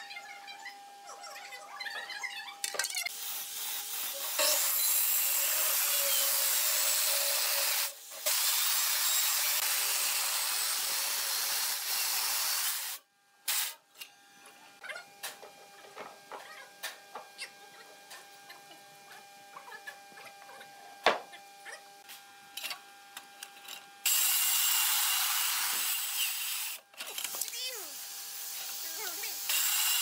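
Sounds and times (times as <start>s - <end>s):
circular saw cutting wood: 3.1s - 13.0s, 24.0s - 26.8s, 27.6s - 30.0s.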